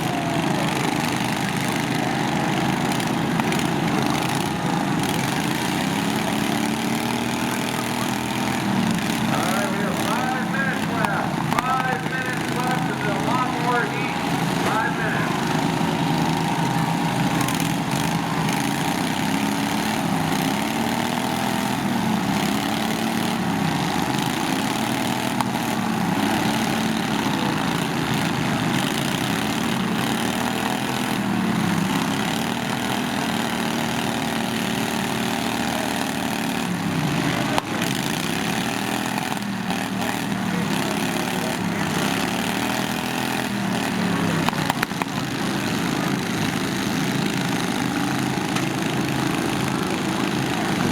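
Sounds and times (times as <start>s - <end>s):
lawn tractor engines revving: 0.0s - 50.9s.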